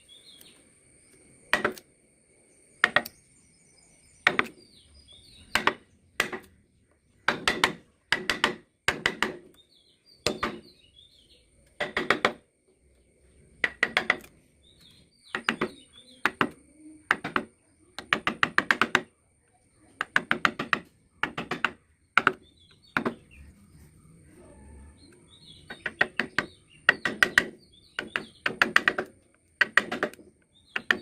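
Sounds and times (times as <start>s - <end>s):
birds chirping faintly: 0.0s - 31.0s
chisel struck into wood: 1.5s - 1.8s, 2.8s - 3.1s, 4.2s - 4.6s, 5.5s - 6.5s, 7.3s - 9.5s, 10.2s - 10.7s, 11.8s - 12.4s, 13.6s - 14.3s, 15.3s - 19.1s, 20.0s - 23.2s, 25.7s - 31.0s.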